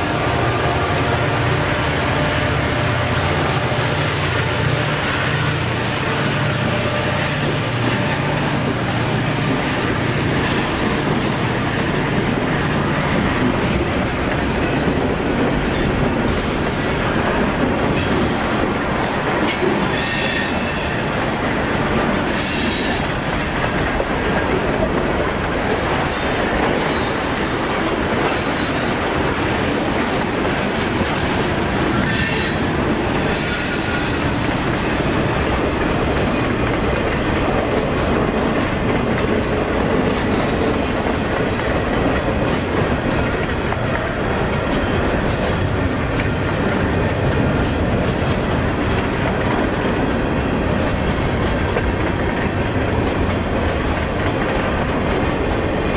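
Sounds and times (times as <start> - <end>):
diesel locomotive engine drone: 0.0 - 55.9
train wheels clacking over rail joints: 6.6 - 55.9.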